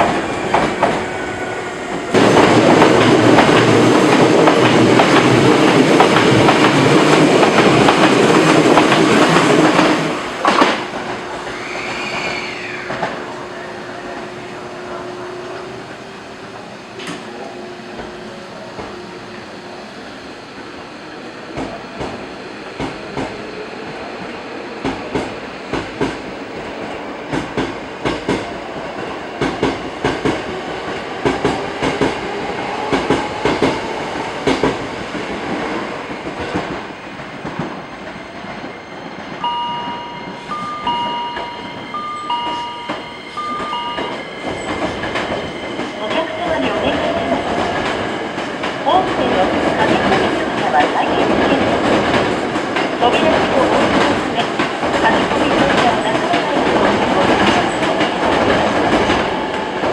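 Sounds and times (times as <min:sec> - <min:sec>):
wheels clacking over rail joints: 0:00.0 - 0:19.5, 0:40.4 - 0:59.9
train rumble: 0:00.0 - 0:59.9.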